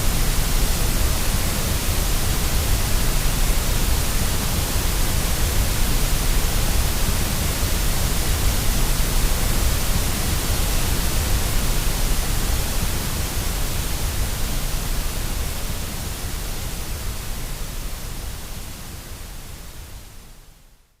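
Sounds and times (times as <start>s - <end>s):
white noise hiss: 0.0s - 21.0s.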